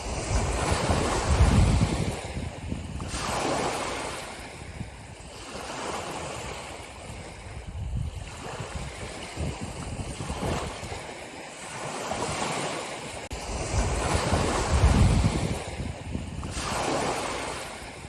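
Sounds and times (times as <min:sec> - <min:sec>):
ocean surf washing: 0:00.0 - 0:18.0.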